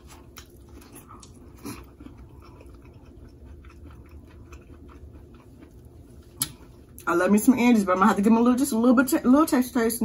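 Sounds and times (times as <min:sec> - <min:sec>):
person chewing: 0:00.0 - 0:07.1.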